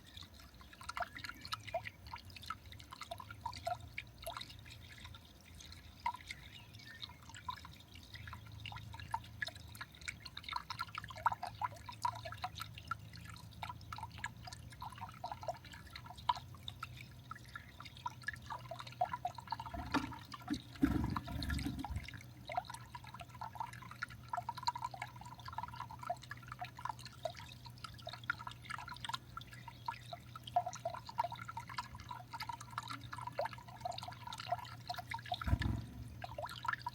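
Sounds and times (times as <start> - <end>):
water dripping and trickling: 0.0 - 36.9
dull low thump: 35.4 - 36.4.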